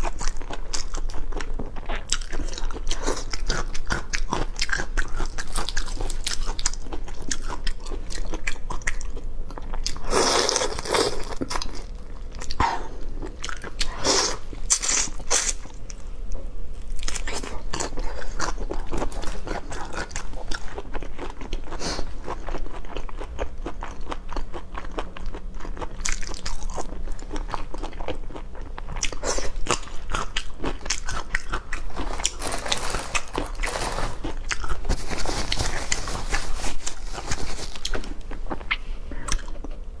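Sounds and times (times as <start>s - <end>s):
crunching shellfish: 16.8s - 39.7s.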